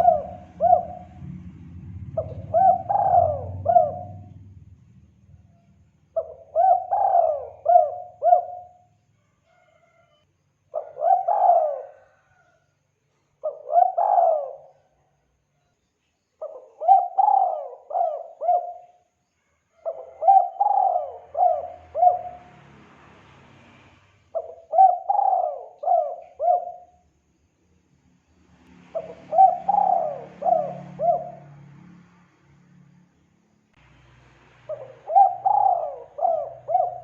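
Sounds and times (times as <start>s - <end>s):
dove cooing: 0.0s - 1.2s, 2.1s - 4.4s, 6.2s - 8.8s, 10.8s - 12.5s, 13.4s - 14.8s, 16.4s - 19.0s, 19.8s - 22.5s, 24.4s - 27.0s, 28.9s - 31.7s, 34.7s - 37.0s.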